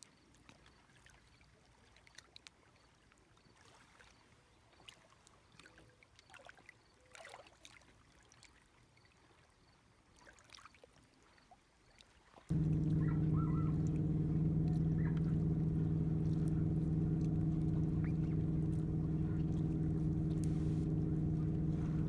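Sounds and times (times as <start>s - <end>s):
engine running steadily: 12.5s - 22.0s.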